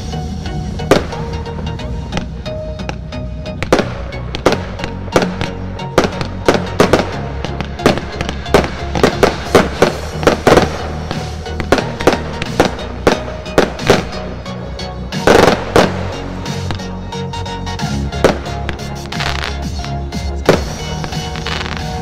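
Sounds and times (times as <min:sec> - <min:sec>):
music: 0:00.0 - 0:22.0
firework shells bursting with bangs: 0:03.6 - 0:14.4, 0:15.2 - 0:16.9, 0:18.1 - 0:22.0.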